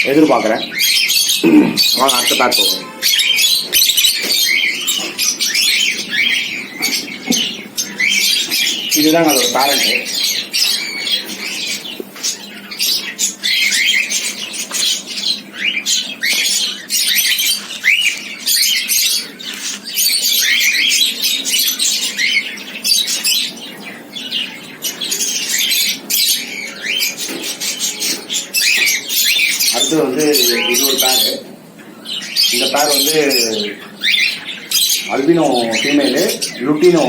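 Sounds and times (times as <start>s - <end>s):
cockatiels chirping and squawking: 0.0s - 37.0s.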